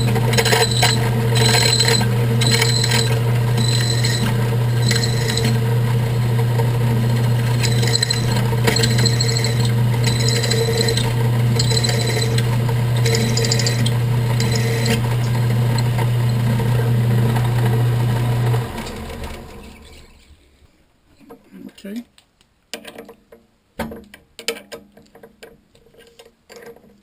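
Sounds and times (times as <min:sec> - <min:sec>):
drill bit scraping metal: 0:00.0 - 0:20.3
drill press motor humming: 0:00.0 - 0:20.4.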